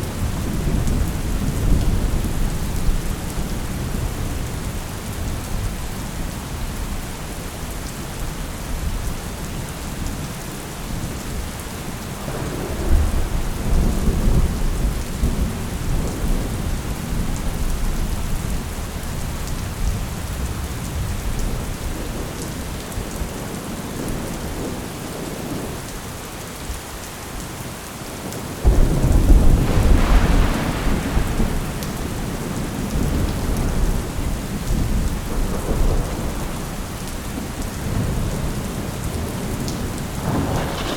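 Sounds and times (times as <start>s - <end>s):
heavy rain: 0.0s - 40.9s
rolling thunder: 12.0s - 18.3s, 28.6s - 40.9s
loud thunderclap: 12.2s - 17.2s, 28.6s - 36.6s, 40.2s - 40.9s.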